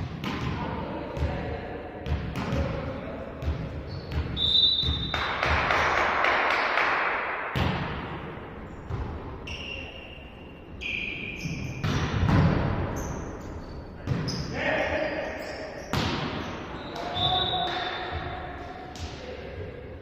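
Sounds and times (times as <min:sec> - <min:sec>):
shoes squeaking on court: 0:03.8 - 0:05.1, 0:10.8 - 0:11.9, 0:12.9 - 0:14.6
volleyball being hit: 0:07.5 - 0:08.3.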